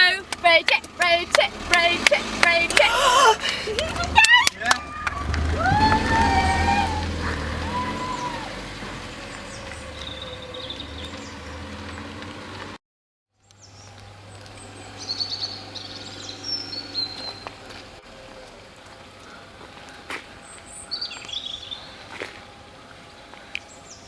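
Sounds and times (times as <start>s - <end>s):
outdoor background noise: 0.0s - 12.8s, 13.4s - 24.0s
small birds chirping: 6.8s - 12.8s, 13.4s - 24.0s.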